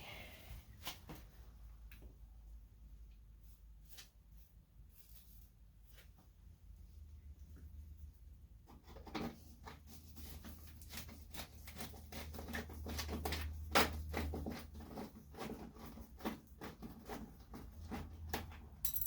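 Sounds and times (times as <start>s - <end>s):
hand tools clicking and tapping: 18.2s - 19.0s.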